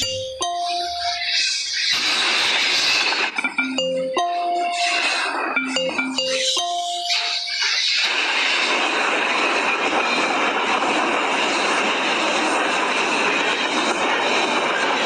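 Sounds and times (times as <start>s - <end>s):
bell-like music notes: 0.0s - 1.6s, 3.4s - 7.9s
steady rushing noise: 4.6s - 15.0s.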